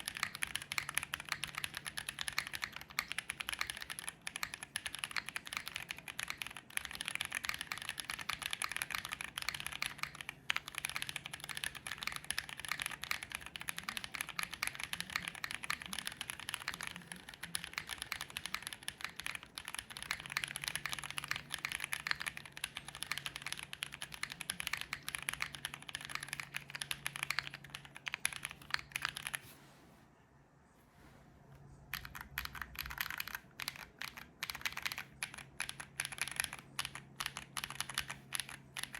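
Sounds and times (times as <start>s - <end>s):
mechanical keyboard typing: 0.0s - 29.4s, 31.9s - 38.9s.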